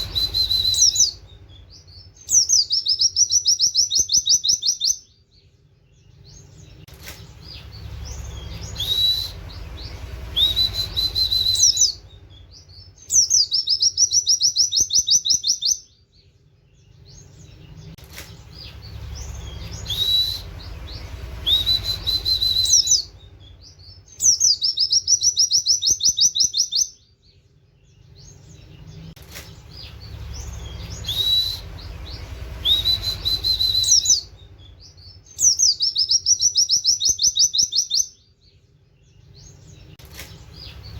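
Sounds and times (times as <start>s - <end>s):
bird whistles and rapid trill: 0.0s - 5.2s, 7.0s - 15.9s, 18.2s - 27.0s, 29.4s - 38.2s.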